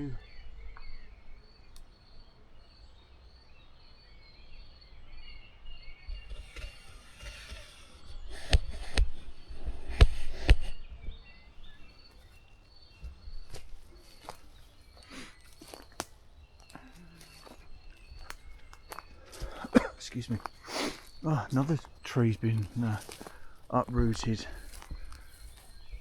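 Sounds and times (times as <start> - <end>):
undergrowth rustling: 5.5 - 26.0
twigs snapping: 13.0 - 26.0.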